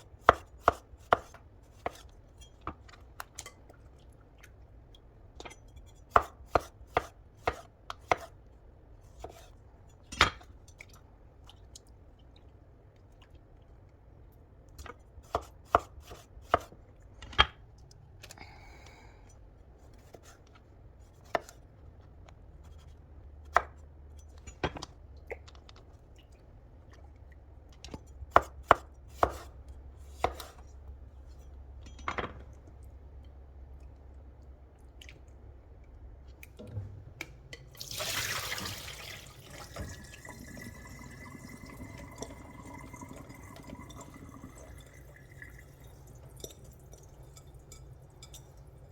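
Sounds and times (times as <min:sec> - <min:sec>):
knife chopping on cutting board: 0:00.2 - 0:02.1, 0:06.1 - 0:08.3, 0:28.3 - 0:30.6
water trickling: 0:37.8 - 0:48.8.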